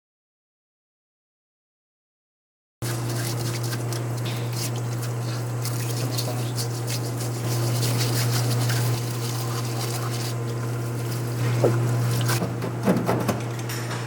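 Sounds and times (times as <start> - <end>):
low machine hum: 2.8 - 14.0.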